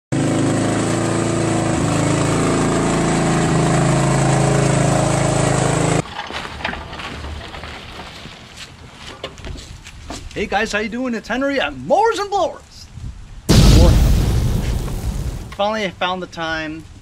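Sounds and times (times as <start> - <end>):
riding lawn mower engine running: 0.1 - 8.6.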